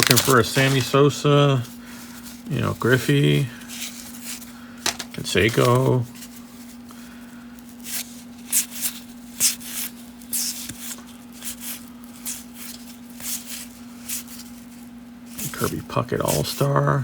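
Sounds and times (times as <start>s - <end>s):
papery swishes of cards: 0.0s - 1.0s, 7.6s - 16.7s
steady low hum: 0.0s - 17.0s.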